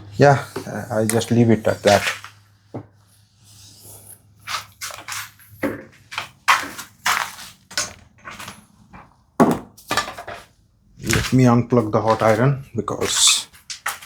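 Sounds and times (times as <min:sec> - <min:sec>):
objects crunching and rustling: 0:04.5 - 0:14.0.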